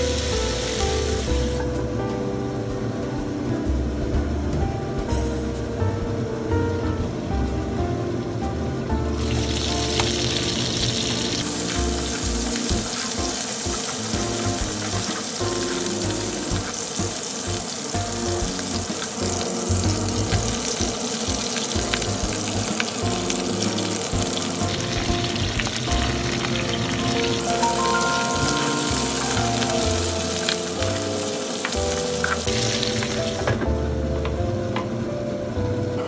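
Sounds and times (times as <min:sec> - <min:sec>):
chicken sizzling in a frying pan: 0:00.0 - 0:01.9, 0:09.1 - 0:33.5.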